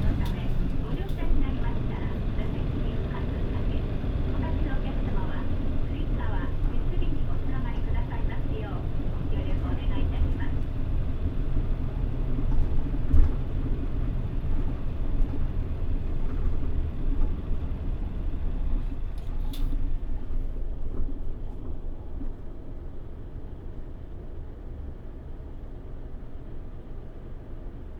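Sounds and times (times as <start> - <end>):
road noise: 0.0 - 20.0
bus engine rumble: 0.0 - 27.9.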